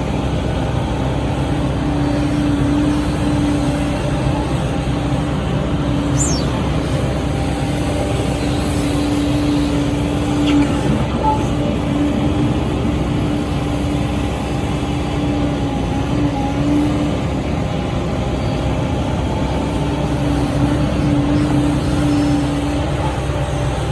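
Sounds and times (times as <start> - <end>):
excavator diesel engine running: 0.0 - 23.9
falling whistle: 6.2 - 6.6.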